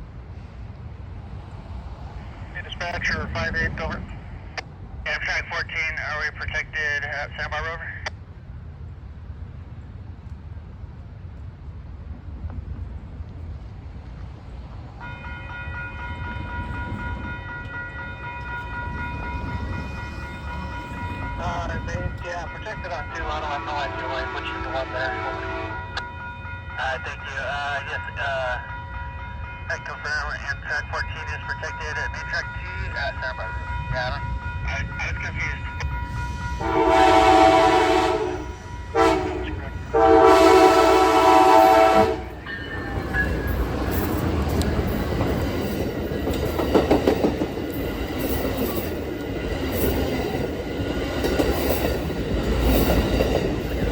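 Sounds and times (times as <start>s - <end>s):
train passing rumble: 0.0s - 53.9s
locomotive air horn blasts: 23.4s - 26.0s, 36.4s - 42.4s.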